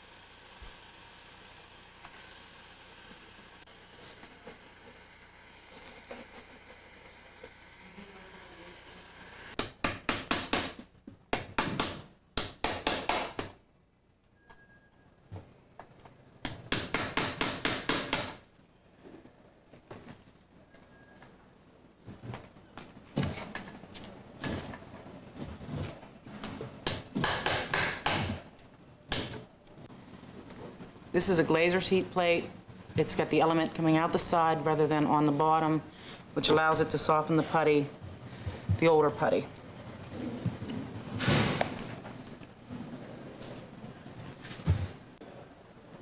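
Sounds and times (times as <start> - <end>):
hammer strikes: 9.6 - 13.6, 16.4 - 18.4, 26.8 - 28.4.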